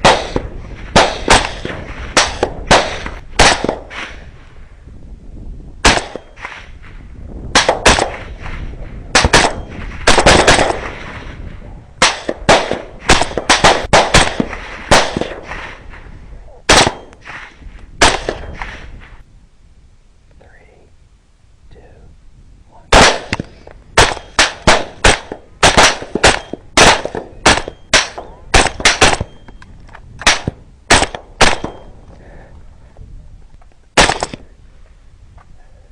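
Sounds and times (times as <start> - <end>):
rapid gunshots echoing: 0.0 - 4.0, 7.6 - 8.4, 9.2 - 11.0, 12.0 - 15.6, 16.7 - 17.1, 18.0 - 18.6, 22.9 - 23.4, 24.0 - 29.4, 30.3 - 31.9.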